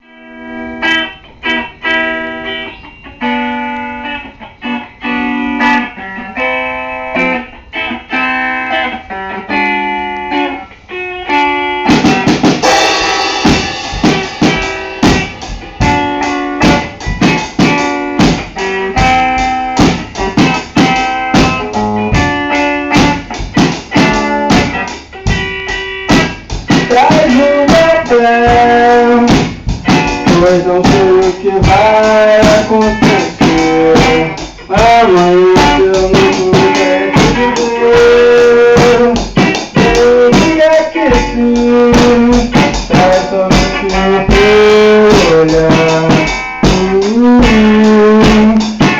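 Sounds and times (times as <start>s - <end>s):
guitar chords: 0.0s - 48.9s
drum kit and full band: 11.8s - 48.9s.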